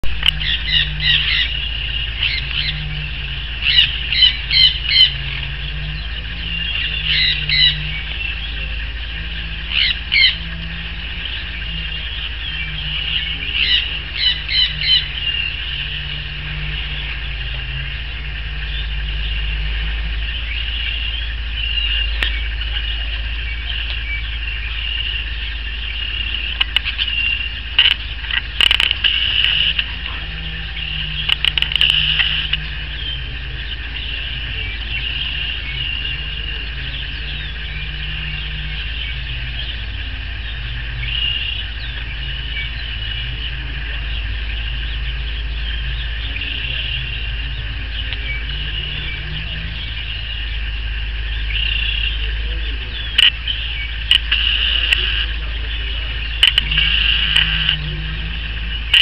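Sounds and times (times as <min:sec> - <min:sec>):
sharp clicks: 0:00.0 - 0:02.8, 0:26.2 - 0:34.1, 0:53.1 - 0:55.3, 0:56.2 - 0:58.3
bird calls: 0:00.0 - 0:59.0
steady hum: 0:00.0 - 0:59.0.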